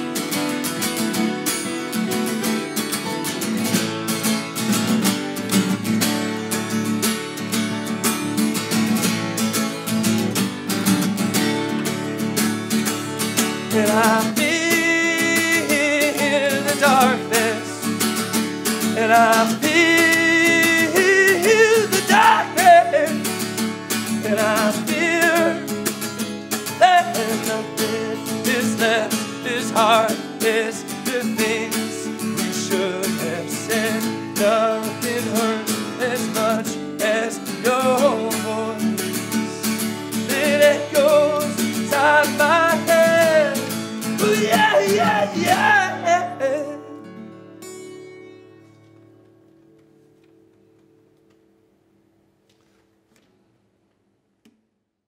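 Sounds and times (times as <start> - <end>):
strummed acoustic guitar: 0.0 - 51.5
person singing: 13.5 - 18.0, 18.8 - 23.4, 24.0 - 25.8, 26.6 - 47.2.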